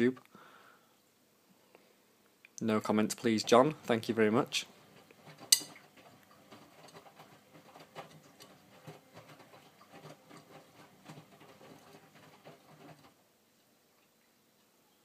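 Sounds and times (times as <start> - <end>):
wet laundry tumbling: 2.6 - 13.2
washing machine drum turning: 2.8 - 13.1.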